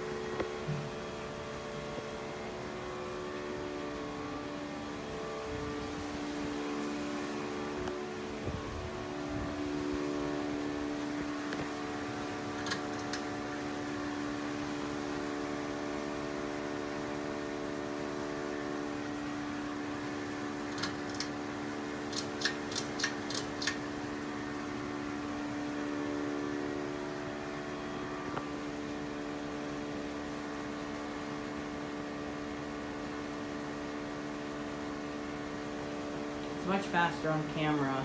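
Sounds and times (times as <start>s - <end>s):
ceiling fan motor humming: 0.0s - 38.0s
sharp clicks: 12.6s - 13.3s, 20.7s - 21.3s, 22.1s - 23.8s.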